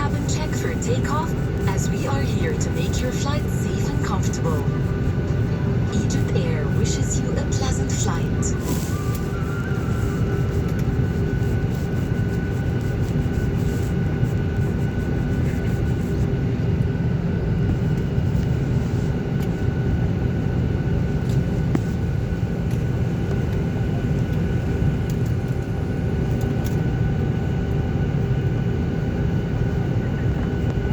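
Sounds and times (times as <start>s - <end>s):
steady whining tones: 0.0s - 11.4s
airliner cabin rumble: 0.0s - 30.9s.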